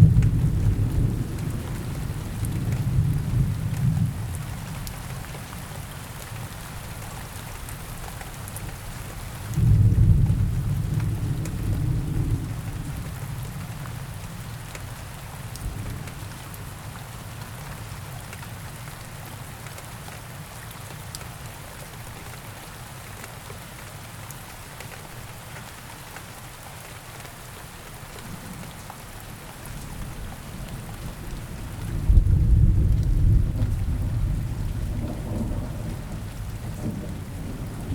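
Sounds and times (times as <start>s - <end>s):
thunder rumbling: 0.0s - 4.8s, 9.6s - 13.1s, 30.0s - 37.9s
steady rain falling: 0.0s - 37.9s.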